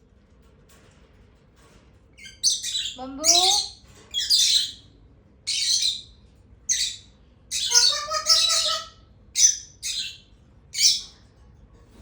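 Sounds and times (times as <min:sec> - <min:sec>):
parrot screeching: 0:06.7 - 0:10.2.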